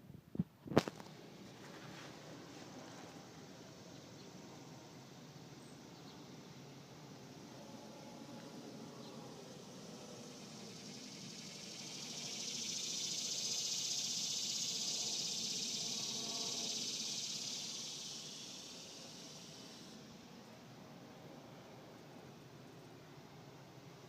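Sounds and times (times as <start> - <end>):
cicada buzzing: 3.2 - 20.3.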